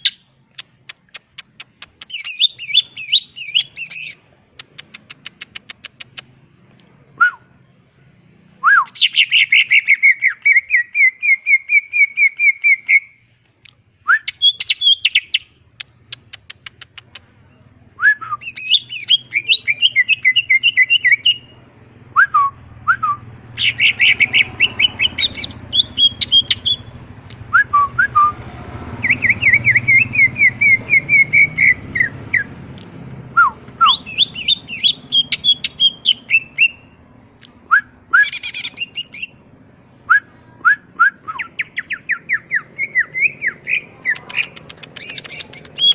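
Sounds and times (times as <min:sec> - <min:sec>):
bird singing trills: 0:02.0 - 0:04.2, 0:08.8 - 0:13.2, 0:14.2 - 0:15.5, 0:17.4 - 0:21.6, 0:23.5 - 0:27.0, 0:29.0 - 0:32.6, 0:33.8 - 0:37.0, 0:38.2 - 0:39.5, 0:41.3 - 0:45.9.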